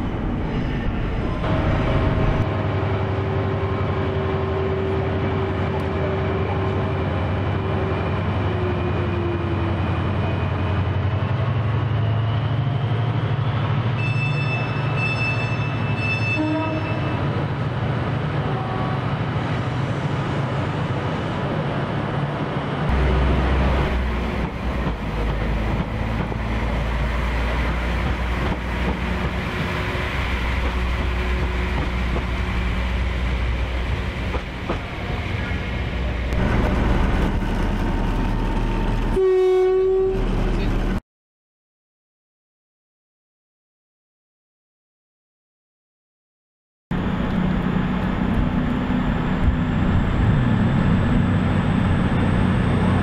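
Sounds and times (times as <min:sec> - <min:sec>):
train rumbling past: 0:00.0 - 0:41.0, 0:46.9 - 0:53.0
train horn blast: 0:14.0 - 0:17.3, 0:39.1 - 0:40.3.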